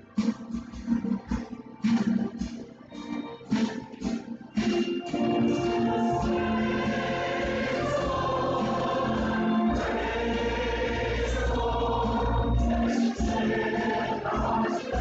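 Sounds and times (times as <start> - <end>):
instrumental accompaniment: 0.0 - 15.0
choir singing a hymn: 5.2 - 15.0.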